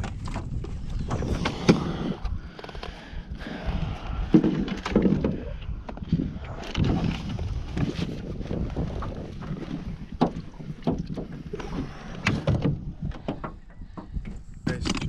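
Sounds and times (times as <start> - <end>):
knocks and thumps in a boat: 0.0 - 15.0
wind rumbling on microphone: 0.0 - 15.0.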